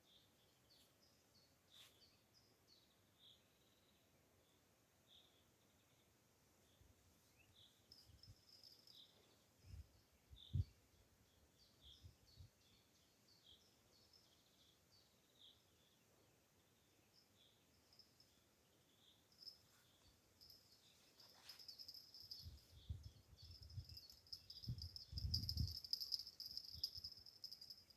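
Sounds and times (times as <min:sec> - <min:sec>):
faint high chirp: 0:06.8 - 0:10.8, 0:16.9 - 0:27.9.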